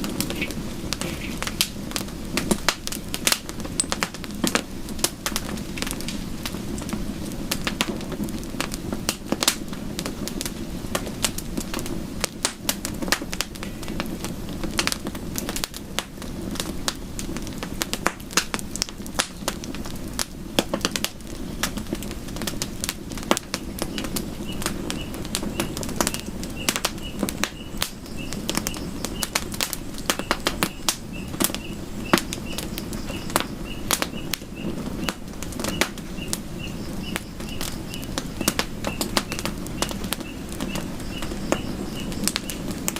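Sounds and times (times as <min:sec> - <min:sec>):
campfire crackling and popping: 0:00.0 - 0:42.9
low rumble of flames: 0:00.0 - 0:42.9
faint high chirp: 0:23.9 - 0:29.4, 0:30.2 - 0:42.6.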